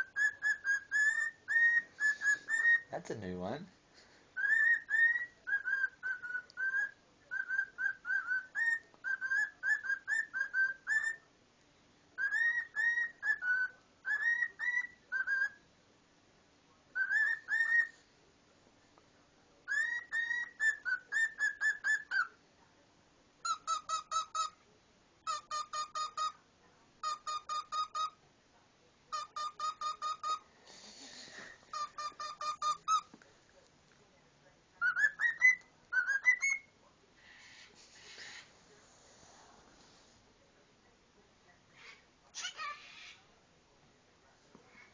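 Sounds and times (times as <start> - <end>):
cockatiel whistling: 0.0 - 2.9, 4.4 - 11.2, 12.2 - 15.6, 17.0 - 17.9, 19.7 - 22.3, 23.4 - 24.6, 25.2 - 26.4, 27.0 - 28.2, 29.1 - 30.4, 31.7 - 33.1, 34.8 - 36.7.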